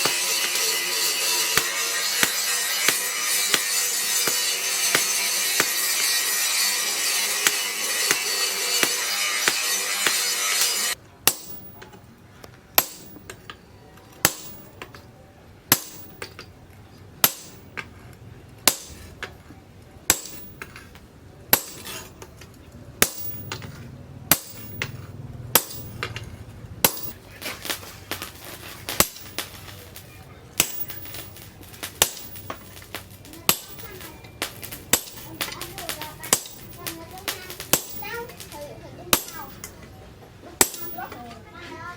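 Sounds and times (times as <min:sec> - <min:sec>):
loud steady cutting noise: 0:00.0 - 0:11.0
hammer striking steel: 0:00.0 - 0:12.1, 0:12.8 - 0:13.6, 0:14.2 - 0:15.0, 0:15.7 - 0:16.5, 0:17.2 - 0:17.9, 0:18.6 - 0:19.4, 0:20.1 - 0:39.9, 0:40.6 - 0:41.3.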